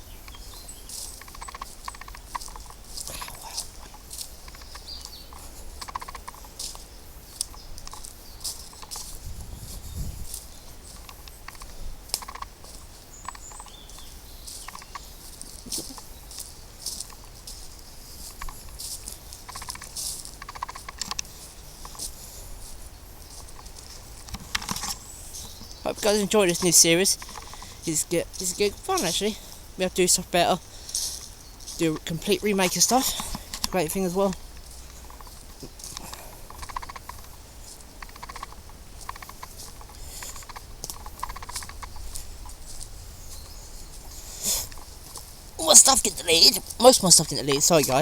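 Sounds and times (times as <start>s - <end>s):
footsteps crunching on path: 0.0s - 48.0s
wind rumble on microphone: 8.8s - 11.1s.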